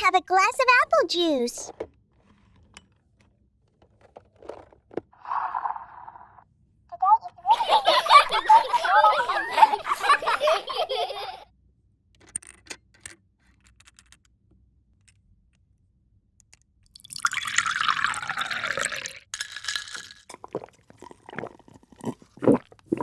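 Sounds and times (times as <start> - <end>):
liquid poured into a glass: 16.9 - 23.0.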